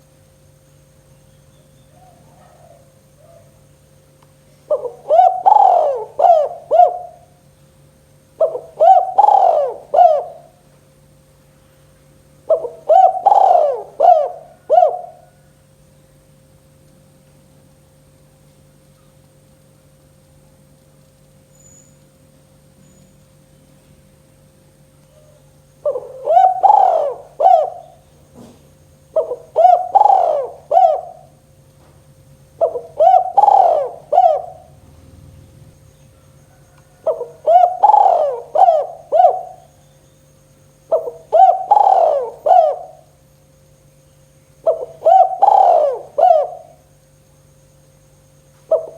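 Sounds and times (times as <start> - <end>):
dove cooing: 1.8 - 3.6, 4.7 - 7.5, 8.4 - 10.7, 12.4 - 15.6, 25.2 - 39.9, 40.8 - 43.3, 44.6 - 46.9, 48.6 - 48.9.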